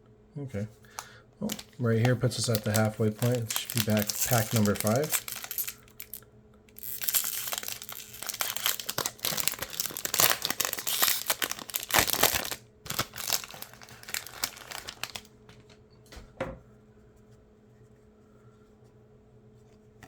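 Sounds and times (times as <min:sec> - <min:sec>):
plastic wrapper tearing and crinkling: 0:00.9 - 0:15.8.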